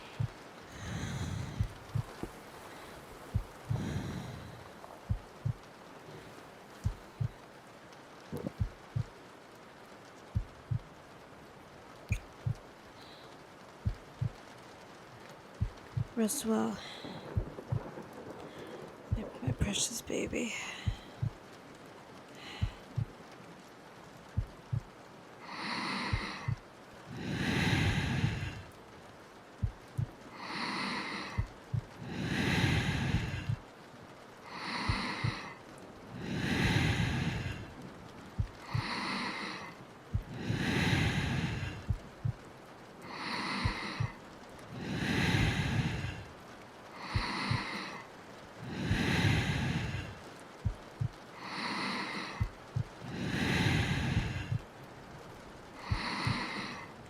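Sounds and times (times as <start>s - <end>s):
heartbeat thumps: 0.0s - 2.4s, 3.2s - 5.7s, 6.8s - 7.4s, 8.3s - 9.2s, 10.4s - 11.0s, 12.1s - 12.7s, 13.8s - 14.5s, 15.6s - 16.2s, 17.0s - 18.4s, 19.1s - 19.8s, 20.8s - 21.5s, 22.5s - 23.2s, 24.3s - 24.9s, 26.1s - 26.6s, 29.6s - 30.2s, 31.4s - 32.0s, 32.7s - 33.7s, 38.3s - 39.0s, 40.1s - 42.5s, 43.6s - 44.2s, 47.1s - 47.7s, 50.6s - 51.2s, 52.4s - 53.0s, 53.8s - 54.7s
slow deep breathing: 0.0s - 7.5s, 12.0s - 14.4s, 16.8s - 19.4s, 20.8s - 23.7s, 24.3s - 57.0s.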